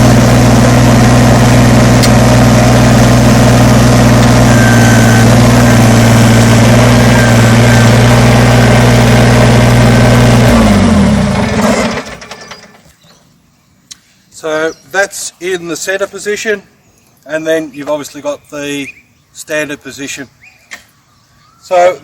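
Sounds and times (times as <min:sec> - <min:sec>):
tractor diesel engine idling: 0:00.0 - 0:12.8.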